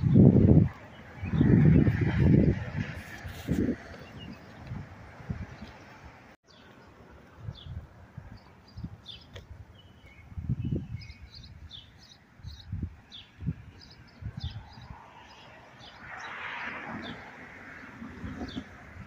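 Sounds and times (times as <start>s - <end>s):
small birds chirping: 5.5s - 18.9s.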